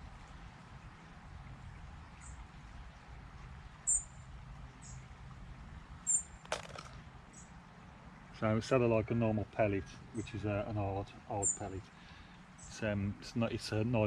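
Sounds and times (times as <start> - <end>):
low outdoor rumble: 0.0 - 14.0
small bird high chirps: 3.8 - 4.2, 6.0 - 6.4, 11.4 - 11.7
handling clatter: 6.4 - 7.0.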